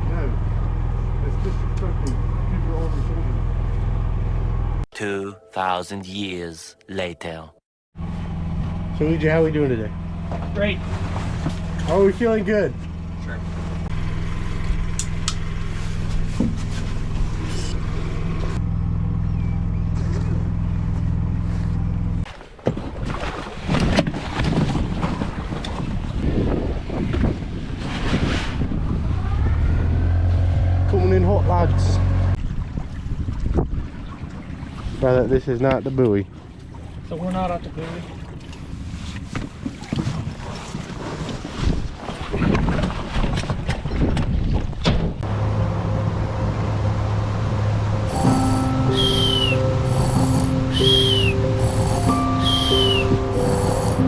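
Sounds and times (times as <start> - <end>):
boat engine humming: 0.0 - 4.8, 8.0 - 22.4, 33.9 - 41.1, 45.2 - 54.0
water noise: 22.2 - 30.5, 32.3 - 44.2, 45.2 - 54.0
wind on microphone: 23.0 - 30.7, 32.4 - 35.0, 39.5 - 45.2
steady low drone: 45.2 - 54.0.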